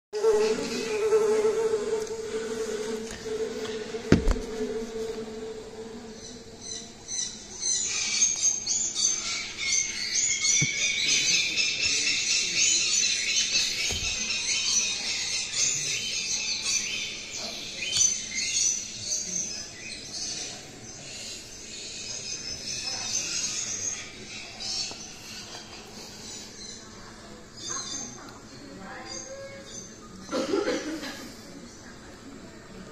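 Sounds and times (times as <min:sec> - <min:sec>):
sharp knock: 0:04.1 - 0:04.5
high-pitched birds chirping: 0:06.2 - 0:30.3.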